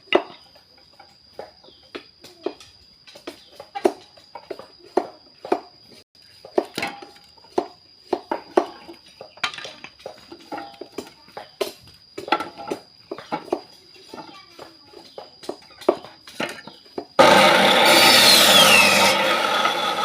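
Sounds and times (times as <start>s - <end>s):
hard objects knocking and clattering: 6.4s - 17.2s.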